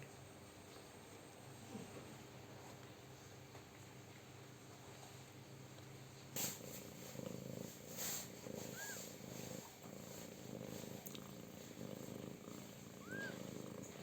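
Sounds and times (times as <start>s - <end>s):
cat purring: 6.4s - 14.0s.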